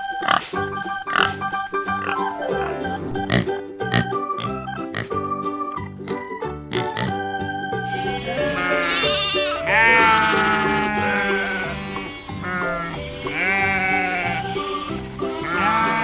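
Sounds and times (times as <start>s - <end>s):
background music: 0.0s - 16.0s
goat or sheep bleating: 7.9s - 16.0s.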